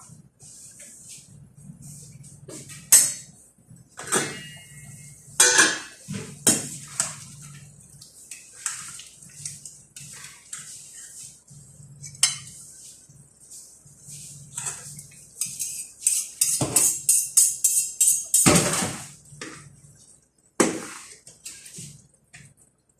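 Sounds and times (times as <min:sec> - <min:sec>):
cutlery clinking against dishes: 0:04.0 - 0:05.9, 0:14.6 - 0:18.6.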